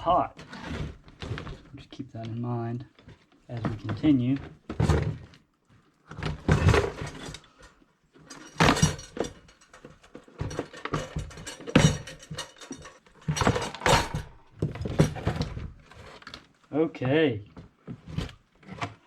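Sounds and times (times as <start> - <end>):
plastic parts and tools knocking: 6.2 - 7.6, 8.3 - 16.1.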